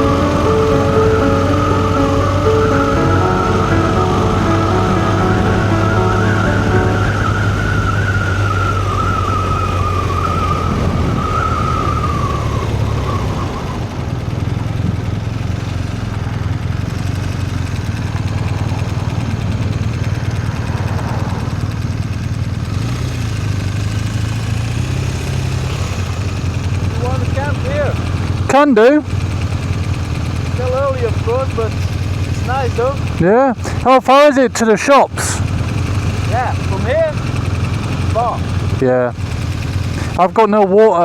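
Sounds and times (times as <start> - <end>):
wavering high tone: 0.0 - 13.9
motorcycle engine droning: 0.0 - 33.8, 35.4 - 40.2.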